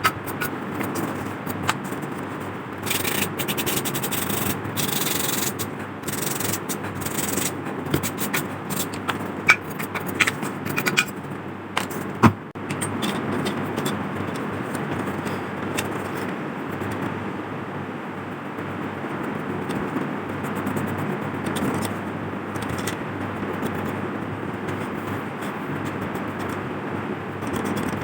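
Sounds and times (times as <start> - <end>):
sandpaper rubbing on metal: 2.8 - 11.1.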